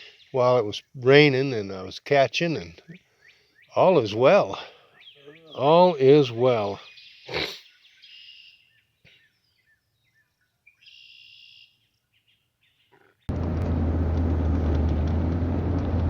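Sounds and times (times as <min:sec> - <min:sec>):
birds singing: 0:00.0 - 0:01.9, 0:02.5 - 0:13.3
car engine and road noise: 0:13.3 - 0:16.0.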